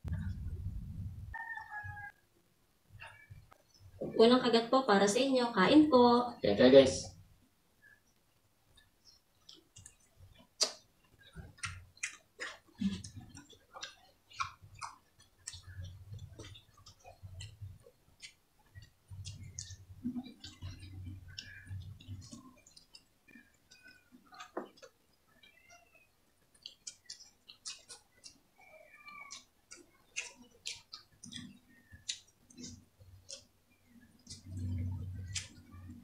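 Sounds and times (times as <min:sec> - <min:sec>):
soft low chewing: 0:00.0 - 0:02.2, 0:07.0 - 0:36.0
wet mouth clicks and lip smacks: 0:08.8 - 0:25.0, 0:26.5 - 0:28.4, 0:29.3 - 0:33.5.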